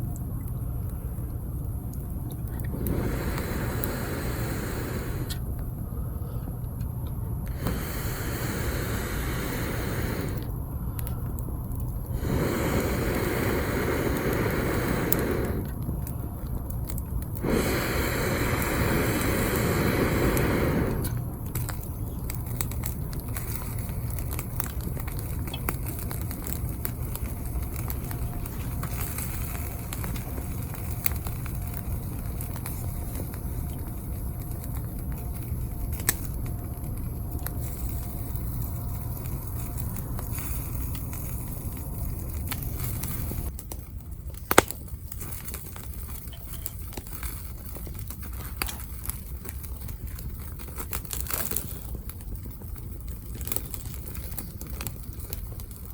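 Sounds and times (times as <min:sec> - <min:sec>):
low rumble: 0:00.0 - 0:50.6
campfire crackling: 0:00.0 - 0:55.9
rushing noise: 0:02.6 - 0:05.4, 0:07.5 - 0:10.5, 0:12.1 - 0:15.7
wood snapping: 0:43.6 - 0:45.8.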